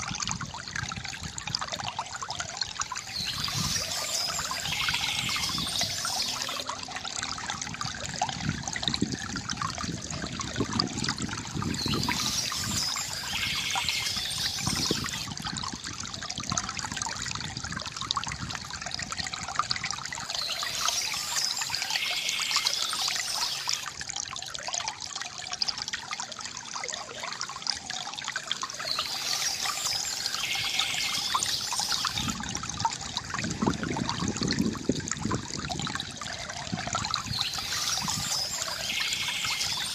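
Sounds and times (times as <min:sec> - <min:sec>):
river water gurgling: 0:00.0 - 0:39.9
birds chirping: 0:02.9 - 0:06.7, 0:11.6 - 0:15.3, 0:20.2 - 0:23.9, 0:28.8 - 0:32.4, 0:37.2 - 0:39.9.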